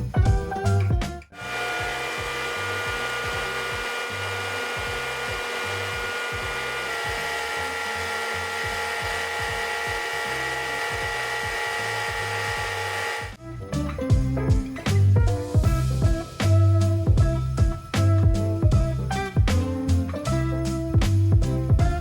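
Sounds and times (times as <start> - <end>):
background music with steady beat: 0.0 - 22.0
kitchen mixer motor running: 1.4 - 13.4.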